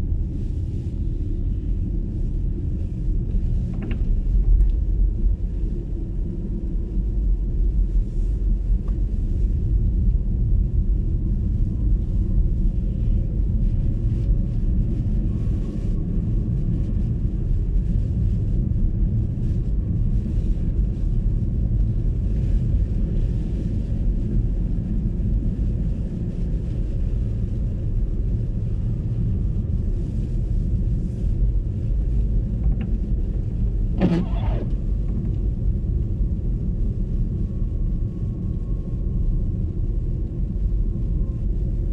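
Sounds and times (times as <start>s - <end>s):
tyre and road noise: 33.9s - 35.4s.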